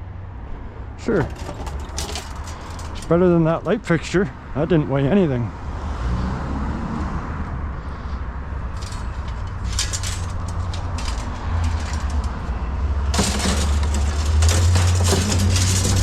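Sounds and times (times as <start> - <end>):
vehicle engine rumble: 0.0 - 16.0
scrap metal clanking and rattling: 1.1 - 3.8, 8.7 - 16.0.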